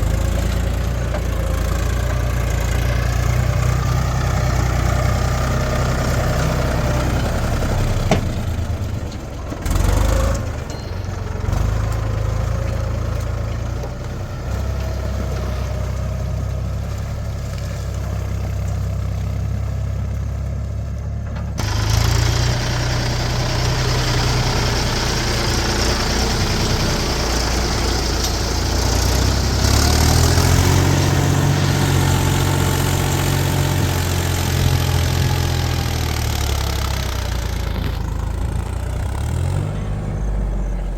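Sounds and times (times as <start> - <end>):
heavy machinery diesel engines: 0.0 - 40.9.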